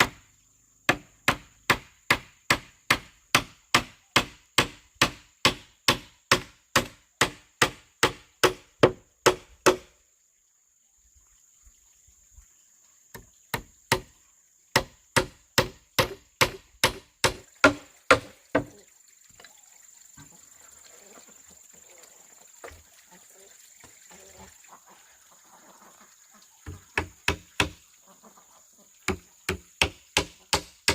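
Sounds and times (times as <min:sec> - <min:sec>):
tool striking bamboo: 0:00.0 - 0:00.2, 0:00.9 - 0:10.0, 0:13.2 - 0:14.1, 0:14.7 - 0:18.8, 0:26.7 - 0:27.8, 0:29.1 - 0:30.9.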